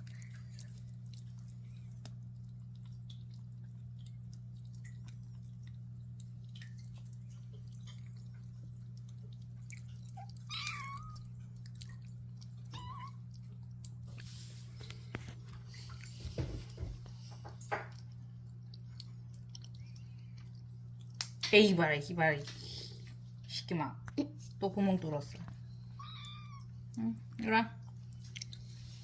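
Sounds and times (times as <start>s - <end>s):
cat rumbling hum while eating: 0.0s - 21.2s, 22.2s - 29.0s
cat mewing: 10.2s - 11.3s.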